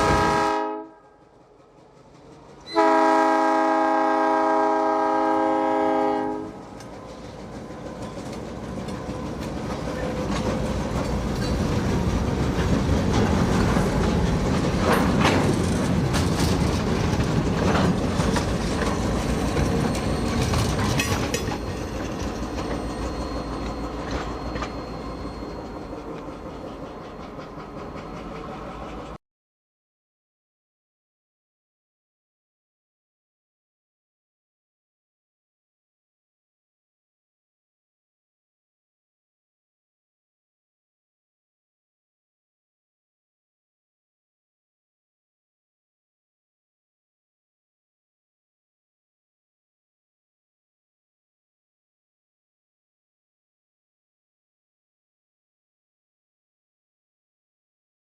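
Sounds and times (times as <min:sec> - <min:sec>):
train horn: 0:00.0 - 0:01.4, 0:02.7 - 0:06.7
train wheels clacking over rails: 0:01.2 - 0:02.8, 0:06.3 - 0:29.2.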